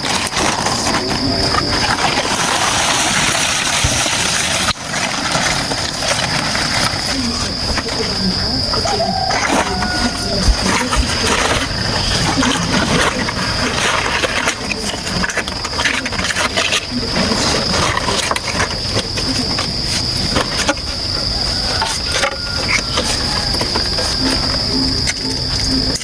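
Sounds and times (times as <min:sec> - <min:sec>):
insects trilling: 0:00.0 - 0:26.0.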